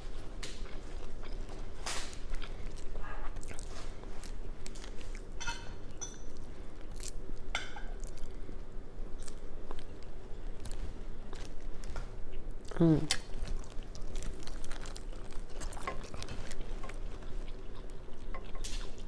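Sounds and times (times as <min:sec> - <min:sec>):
wet chewing sounds: 0:00.0 - 0:19.0
shellfish shells cracking: 0:13.1 - 0:17.0.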